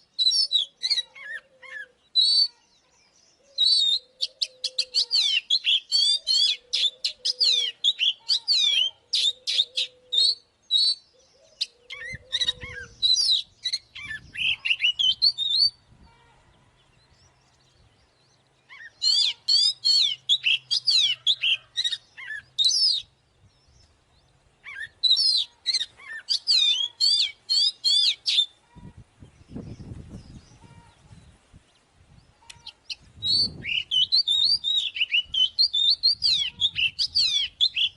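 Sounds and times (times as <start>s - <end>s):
bird singing whistles and chirps: 0.0s - 16.0s, 16.8s - 28.6s, 32.2s - 37.9s.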